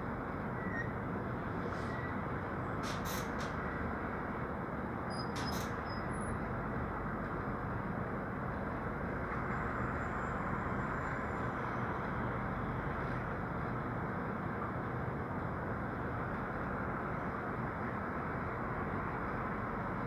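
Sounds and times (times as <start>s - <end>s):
road traffic rumble and tyre hiss: 0.0s - 20.0s.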